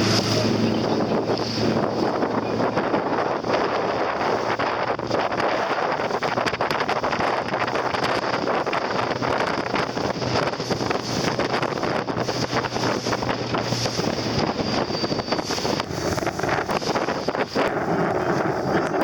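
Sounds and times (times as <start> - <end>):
water rushing: 0.0 - 19.0
wind buffeting microphone: 0.0 - 19.0.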